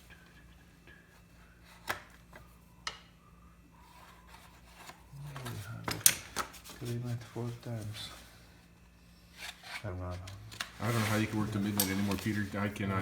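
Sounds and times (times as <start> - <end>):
low steady hum: 0.0 - 13.0
material rubbing: 10.7 - 13.0.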